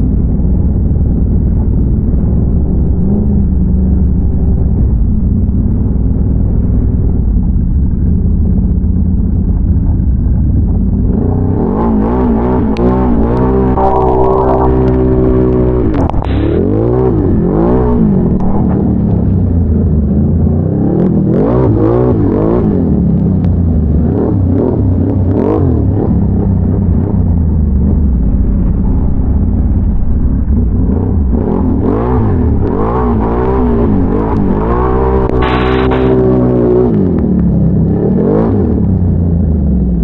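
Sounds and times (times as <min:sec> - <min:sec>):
atv engine revving: 0:08.1 - 0:40.0.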